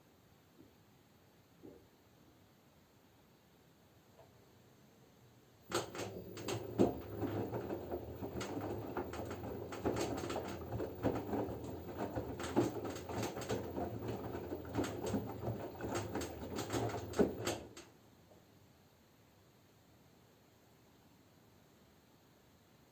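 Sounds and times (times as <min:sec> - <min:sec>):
washing machine motor hum: 0:05.6 - 0:17.9
laundry and water sloshing: 0:05.7 - 0:17.8.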